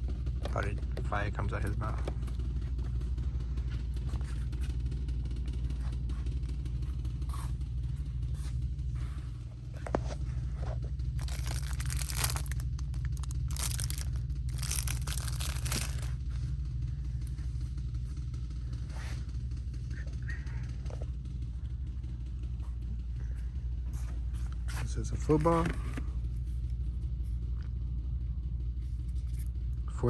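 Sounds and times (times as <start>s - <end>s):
steady low pulsing hum: 0.0s - 30.0s
rustling: 10.0s - 16.3s.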